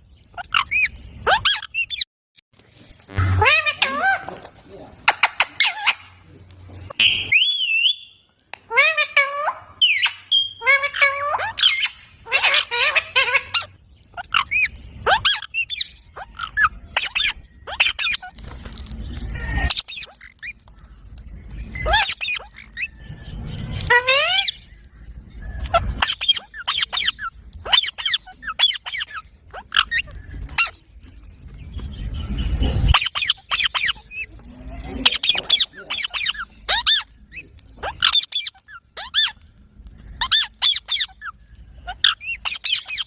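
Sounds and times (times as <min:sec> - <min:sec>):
parrot squawking and chattering: 0:00.3 - 0:02.1, 0:03.1 - 0:04.4, 0:05.0 - 0:06.3, 0:08.6 - 0:18.4, 0:19.3 - 0:20.7, 0:21.7 - 0:23.0, 0:23.8 - 0:24.6, 0:25.6 - 0:30.8, 0:32.9 - 0:39.5, 0:40.2 - 0:43.0.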